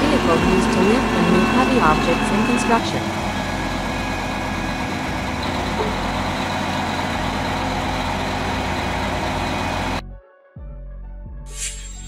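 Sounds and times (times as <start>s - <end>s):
crane engine humming: 0.0s - 10.0s.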